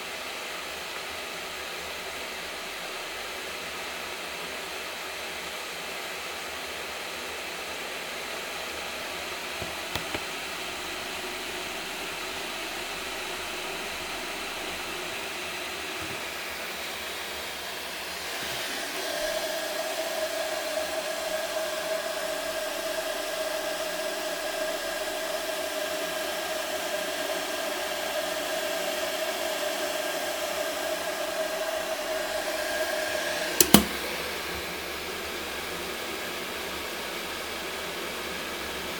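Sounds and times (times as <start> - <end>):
electric kettle heating water: 0.0 - 38.9
kettle switch click: 9.6 - 16.4, 32.9 - 34.7.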